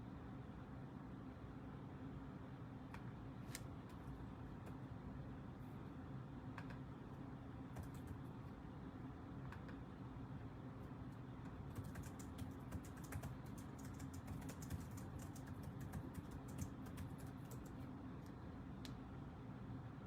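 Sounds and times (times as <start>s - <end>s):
low steady hum: 0.0s - 20.0s
keyboard typing clicks: 7.7s - 8.2s, 9.5s - 9.8s, 11.4s - 17.8s.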